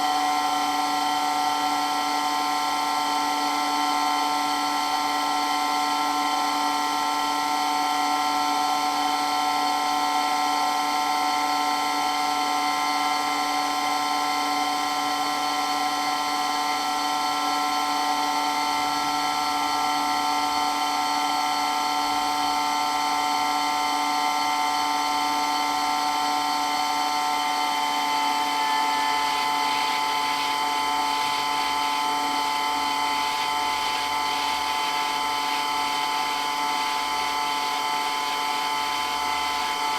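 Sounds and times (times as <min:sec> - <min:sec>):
water pump whining: 0:21.7 - 0:39.9.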